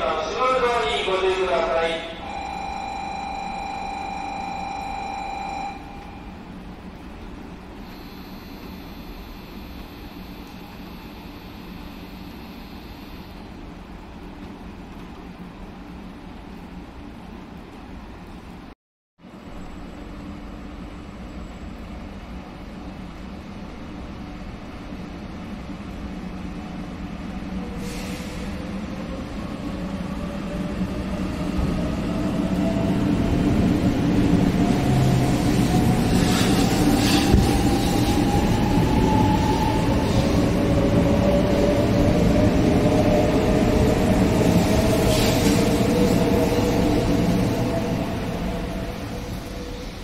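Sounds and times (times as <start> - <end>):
train motor whine: 2.2 - 6.2, 7.8 - 13.4
wheels rumbling on rail: 19.3 - 50.0.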